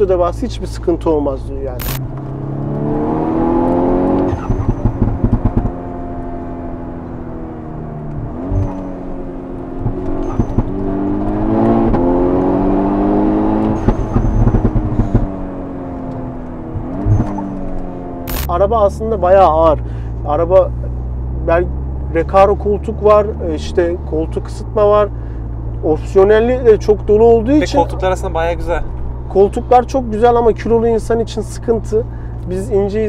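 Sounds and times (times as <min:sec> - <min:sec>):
car engine pulling hard: 0:00.0 - 0:33.0
exhaust pops and crackles: 0:03.6 - 0:06.3, 0:08.0 - 0:12.6, 0:13.6 - 0:18.7.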